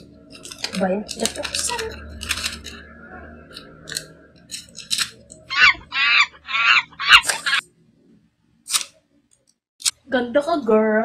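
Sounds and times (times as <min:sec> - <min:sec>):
paper rustling and crinkling: 0:00.3 - 0:02.8
bird calling: 0:05.5 - 0:07.6.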